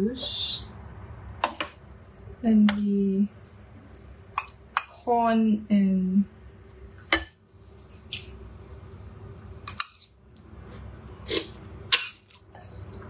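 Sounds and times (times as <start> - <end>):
person chewing: 10.7 - 13.0.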